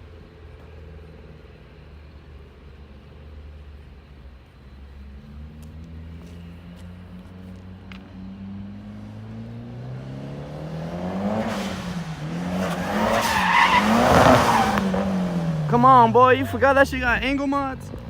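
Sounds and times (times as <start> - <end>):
car engine revving: 8.2 - 16.2
tires squealing: 10.0 - 16.7.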